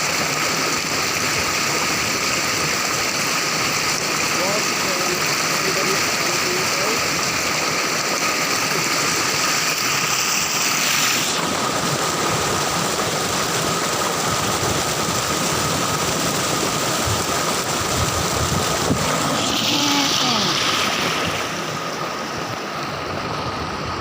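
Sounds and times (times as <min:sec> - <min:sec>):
rushing water: 0:00.0 - 0:24.0
thin high tone: 0:19.3 - 0:20.9.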